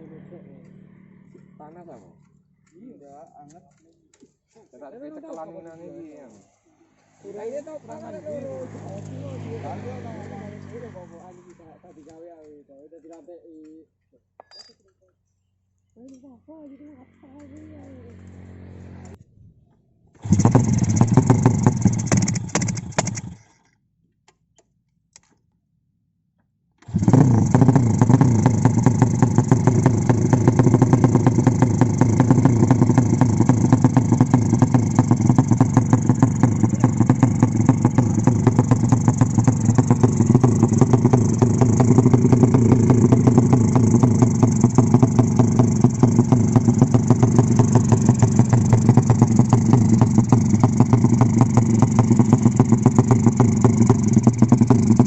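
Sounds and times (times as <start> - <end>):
racing motorcycle engine running: 0.0 - 2.7, 7.2 - 12.1, 17.2 - 19.2, 20.2 - 23.5, 26.8 - 55.0.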